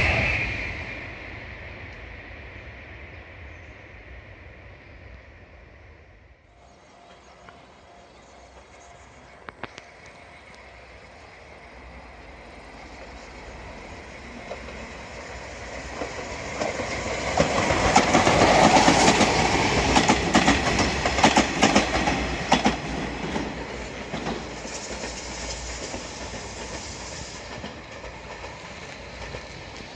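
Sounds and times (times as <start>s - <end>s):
high-speed train rushing past: 0.0s - 29.9s
sharp clicks of train: 6.9s - 11.7s, 12.3s - 29.9s.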